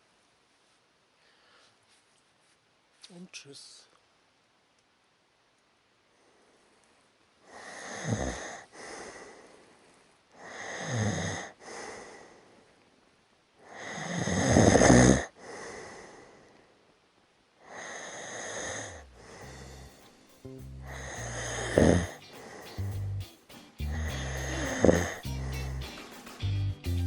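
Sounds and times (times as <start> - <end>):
person snoring: 7.5 - 9.5, 10.4 - 12.4, 13.6 - 16.5, 17.7 - 20.2, 20.8 - 23.2, 23.9 - 25.8.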